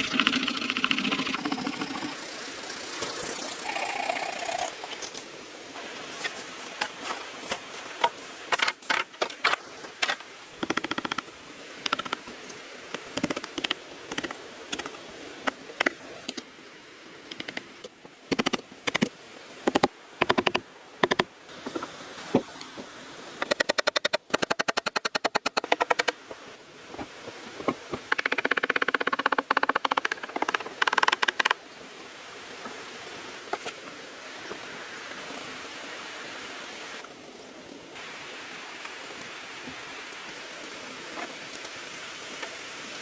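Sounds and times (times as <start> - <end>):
clicks and knocks on bamboo: 6.8 - 12.2, 12.9 - 16.5, 19.7 - 22.5, 23.4 - 26.2, 27.6 - 31.6.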